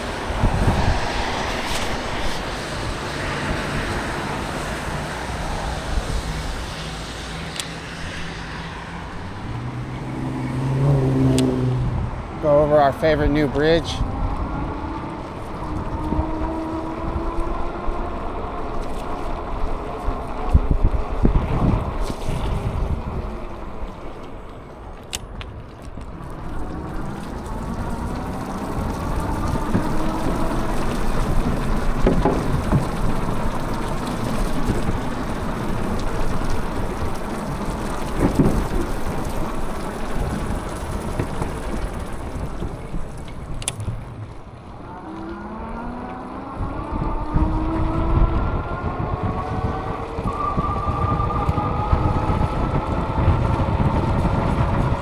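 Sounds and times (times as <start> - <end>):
steady low rumble: 0.0 - 45.0
wind buffeting microphone: 0.0 - 55.0.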